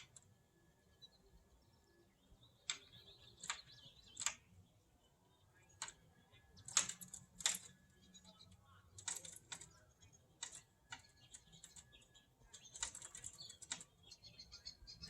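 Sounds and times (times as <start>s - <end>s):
faint high chirping: 0.0s - 15.0s
bird pecking on metal: 2.7s - 4.5s, 5.7s - 14.2s.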